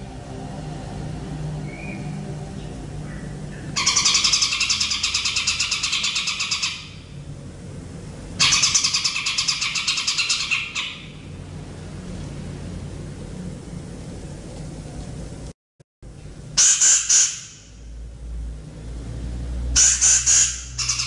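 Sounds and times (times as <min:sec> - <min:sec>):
bird rattling trills: 0:03.8 - 0:07.1, 0:08.4 - 0:11.2, 0:16.6 - 0:17.7, 0:19.8 - 0:21.0.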